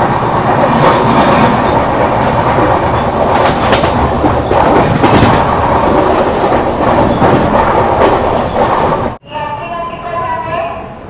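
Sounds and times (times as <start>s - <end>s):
wheels clacking over rail joints: 0.0s - 9.2s
train rushing on rails: 0.0s - 11.0s.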